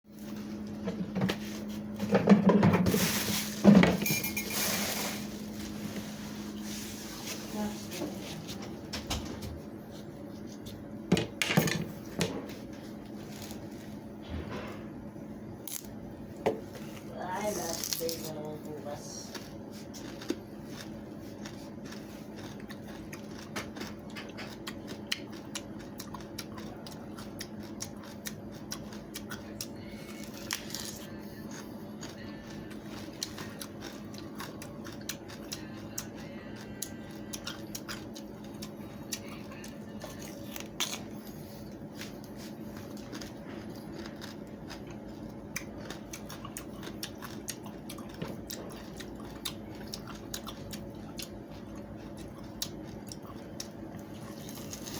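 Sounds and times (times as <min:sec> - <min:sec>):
steady low hum: 0:00.0 - 0:54.9
biting and chewing watermelon rind: 0:17.4 - 0:54.9.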